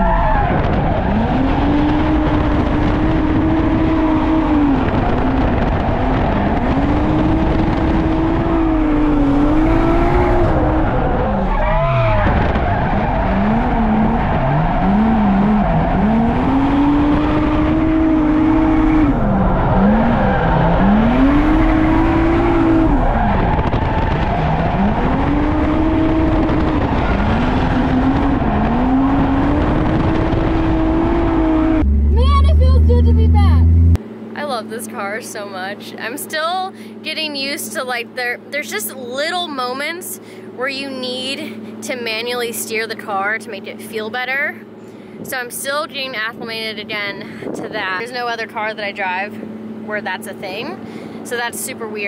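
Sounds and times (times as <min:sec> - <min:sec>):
tyres skidding and squealing: 0:00.0 - 0:34.0
car engine revving: 0:00.0 - 0:52.0.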